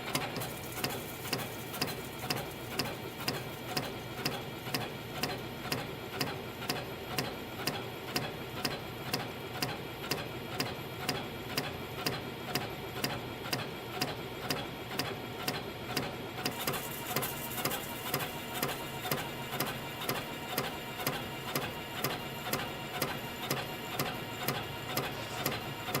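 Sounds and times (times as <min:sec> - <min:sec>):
machine whirring: 0:16.5 - 0:26.0.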